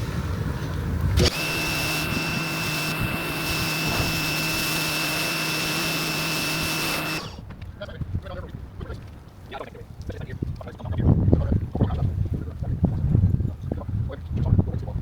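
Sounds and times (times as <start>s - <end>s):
small electric motor whining: 1.2s - 7.4s.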